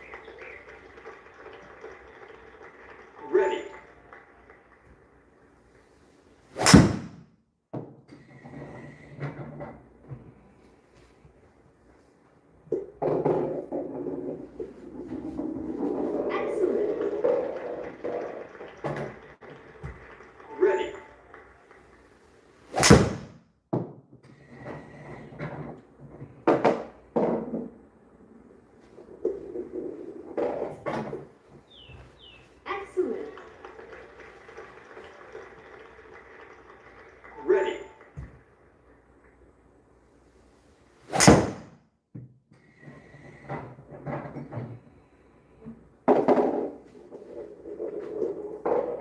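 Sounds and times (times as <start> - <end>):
golf club hitting ball: 6.6 - 7.3, 22.7 - 23.4, 41.1 - 41.7.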